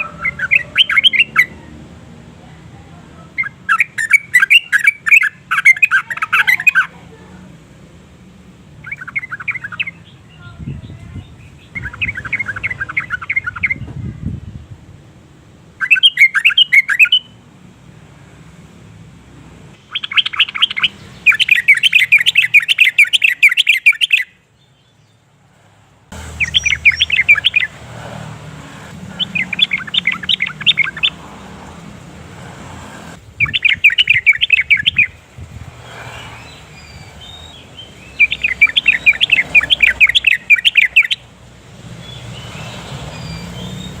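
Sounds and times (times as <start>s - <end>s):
bird chattering song: 0.0s - 1.7s, 3.3s - 7.0s, 8.8s - 13.9s, 15.8s - 17.4s, 19.8s - 25.2s, 26.2s - 28.2s, 28.9s - 31.6s, 33.2s - 35.2s, 35.8s - 41.3s, 41.9s - 44.0s.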